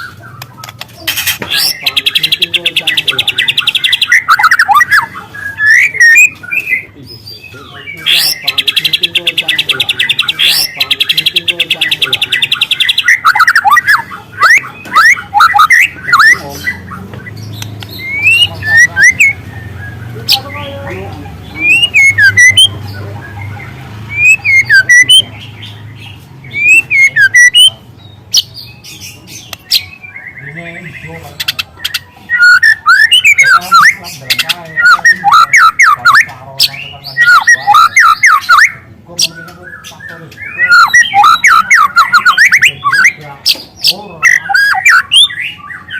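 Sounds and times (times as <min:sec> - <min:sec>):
bird singing whistled notes: 0:01.5 - 0:20.7, 0:21.5 - 0:45.9
bird singing rising whistled notes: 0:21.6 - 0:25.8, 0:31.8 - 0:34.0, 0:39.4 - 0:43.2.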